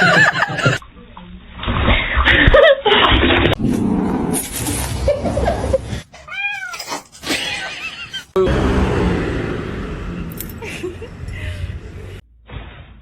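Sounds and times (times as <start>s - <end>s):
cat meowing: 6.2s - 6.9s.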